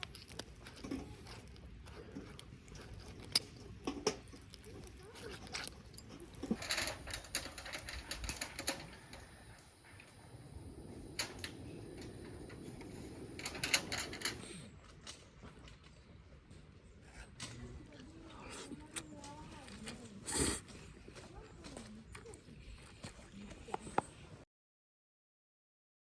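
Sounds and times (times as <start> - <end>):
campfire crackling: 0.0 - 16.7.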